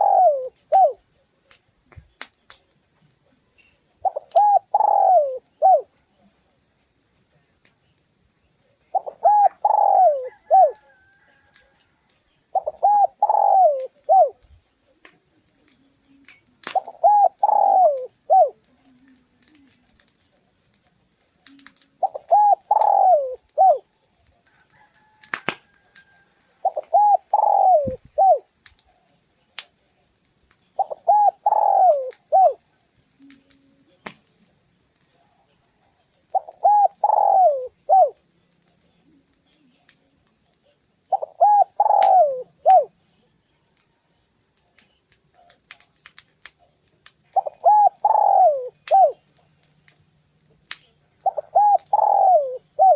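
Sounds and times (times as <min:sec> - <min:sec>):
dove cooing: 0:00.0 - 0:01.1, 0:03.6 - 0:06.2, 0:08.8 - 0:11.8, 0:12.5 - 0:14.6, 0:15.5 - 0:20.0, 0:21.5 - 0:28.5, 0:30.7 - 0:33.6, 0:35.4 - 0:38.2, 0:41.1 - 0:43.0, 0:47.2 - 0:49.3, 0:51.0 - 0:52.9.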